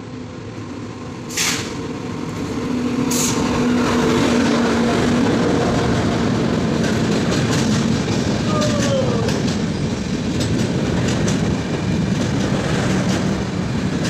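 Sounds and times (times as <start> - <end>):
locomotive hum: 0.0 - 14.0
train rumbling past: 0.0 - 14.0.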